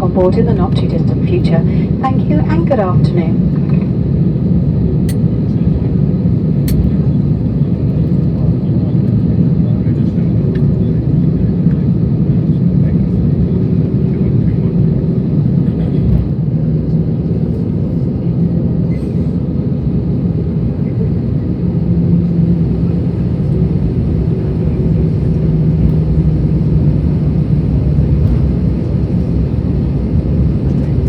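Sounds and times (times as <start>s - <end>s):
idling jet engines rumble: 0.0s - 31.0s.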